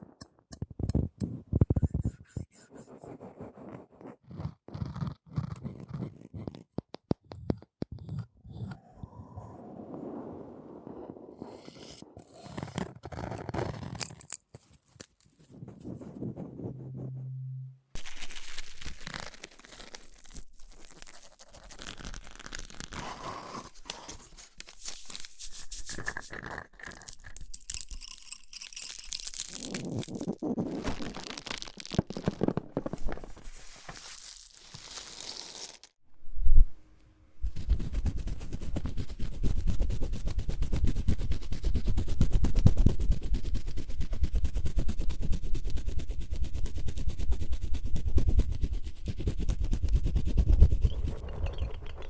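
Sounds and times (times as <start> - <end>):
scratching: 11.4 - 35.9
close crunching and crinkling: 18.0 - 35.9.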